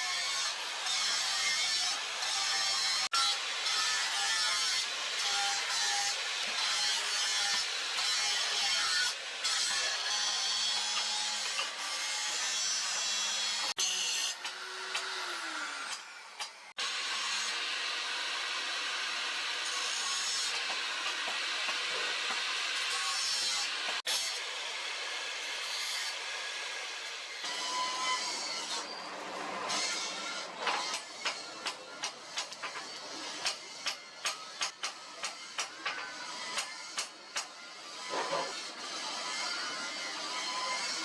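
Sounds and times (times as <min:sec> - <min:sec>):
tool scraping wood: 0:29.8 - 0:38.8.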